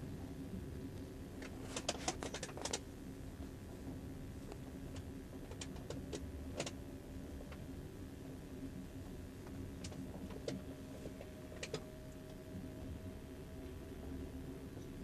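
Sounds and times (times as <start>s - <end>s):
sharp clicks and rattles: 1.4s - 2.9s, 4.5s - 6.8s, 9.8s - 11.8s.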